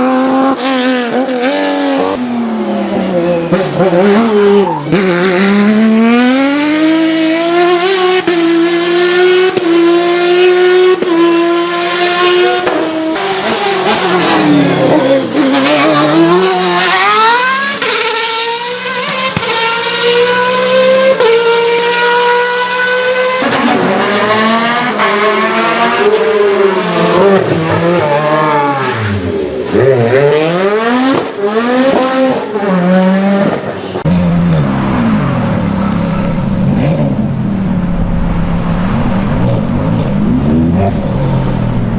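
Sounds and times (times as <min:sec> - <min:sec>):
high-revving car engines: 0:00.0 - 0:41.9.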